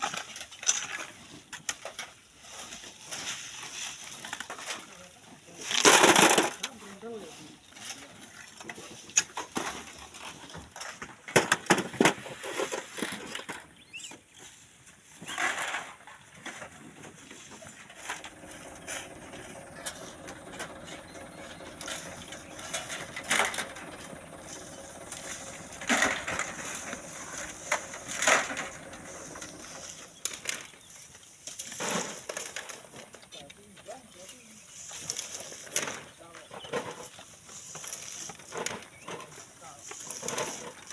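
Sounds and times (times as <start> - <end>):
sand and stones crunching: 15.2 - 33.0.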